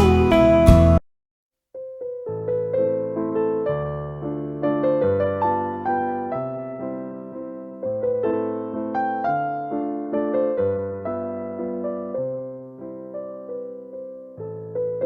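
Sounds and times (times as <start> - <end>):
gentle electric piano: 1.8 - 15.0.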